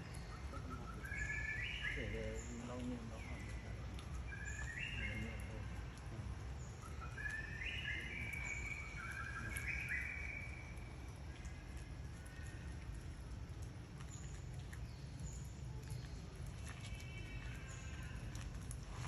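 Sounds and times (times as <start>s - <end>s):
bird singing whistled notes: 0.0s - 2.6s, 4.3s - 5.5s, 6.6s - 10.8s.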